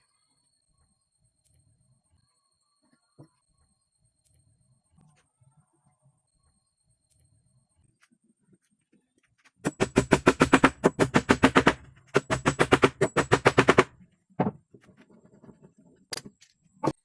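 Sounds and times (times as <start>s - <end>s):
rapid sharp knocks: 9.7s - 14.6s.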